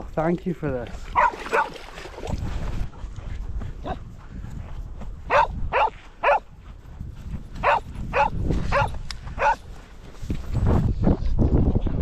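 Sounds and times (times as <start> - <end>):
dog barking: 1.2 - 1.8, 5.3 - 6.5, 7.6 - 9.6.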